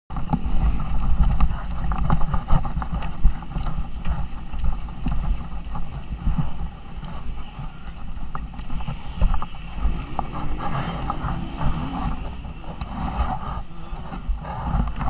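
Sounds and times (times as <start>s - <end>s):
wind buffeting microphone: 0.1s - 15.0s
motocross bike engine: 7.2s - 15.0s.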